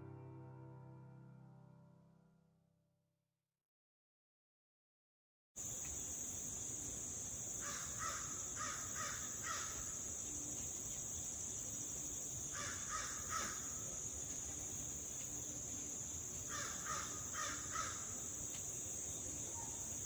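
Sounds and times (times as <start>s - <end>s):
bird harsh calls: 7.6s - 10.1s, 12.5s - 14.0s, 16.4s - 18.4s.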